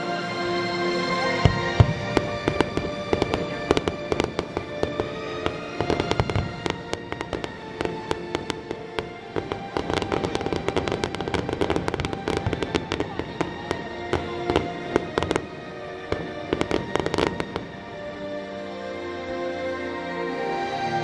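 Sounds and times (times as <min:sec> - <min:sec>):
music playing: 0:00.0 - 0:21.0
fireworks bangs and crackles: 0:01.4 - 0:18.1.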